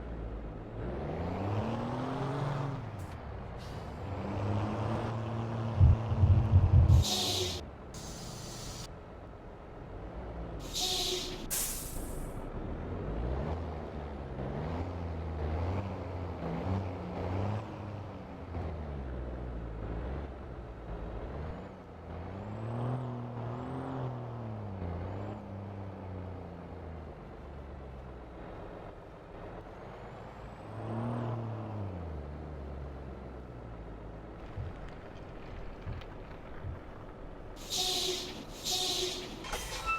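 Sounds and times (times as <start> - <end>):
truck engine revving: 0.6 - 7.6, 34.4 - 39.9
brake air hiss: 6.9 - 8.9, 10.6 - 12.4, 35.7 - 39.9.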